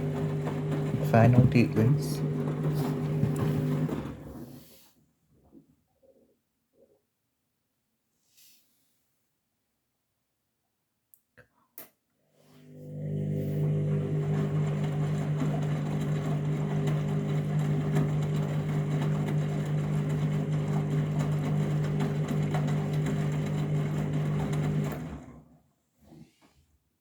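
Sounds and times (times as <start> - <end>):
washing machine humming: 0.0 - 4.7, 12.6 - 25.6.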